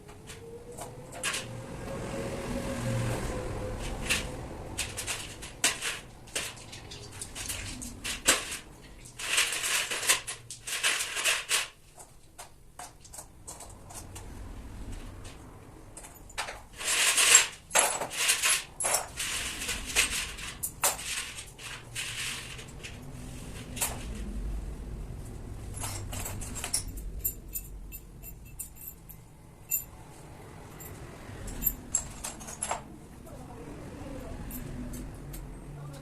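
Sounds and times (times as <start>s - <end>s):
metal tools clinking: 16.0s - 23.0s, 25.7s - 30.0s, 30.7s - 32.9s.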